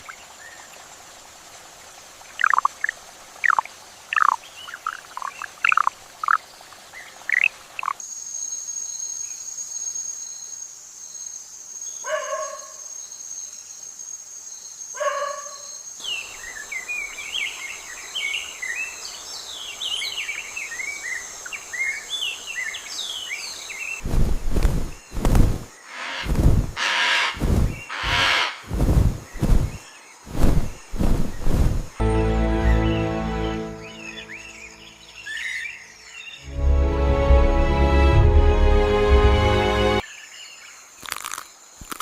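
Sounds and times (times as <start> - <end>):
birds chirping: 23.8 - 36.5
quick bird chirps: 24.0 - 32.0
harsh bird calls: 24.9 - 29.8.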